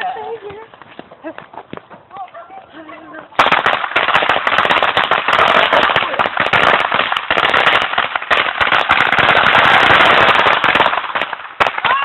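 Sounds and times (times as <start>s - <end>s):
firecrackers cracking: 3.3s - 12.0s.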